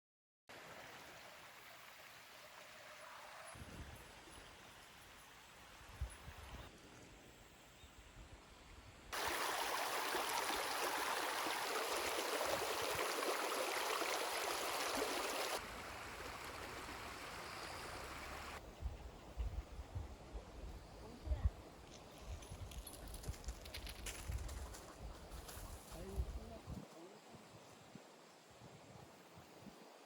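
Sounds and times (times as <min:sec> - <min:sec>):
water rushing over rocks: 0:09.2 - 0:18.6.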